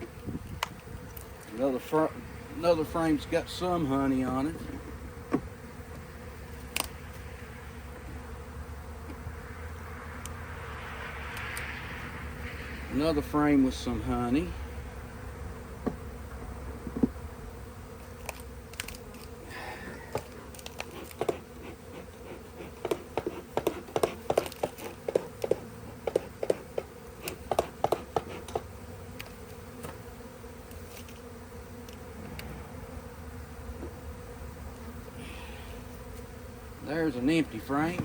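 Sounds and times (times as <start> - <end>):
honey bees buzzing: 0.0 - 38.0
wooden hive frames clicking: 20.1 - 30.0.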